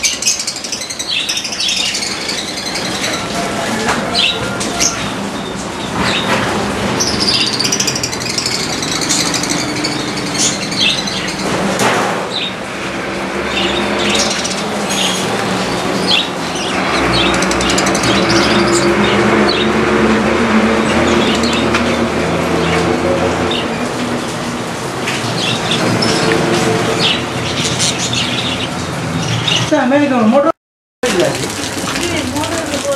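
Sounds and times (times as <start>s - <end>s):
small birds chirping: 0.0s - 3.3s, 7.0s - 11.6s.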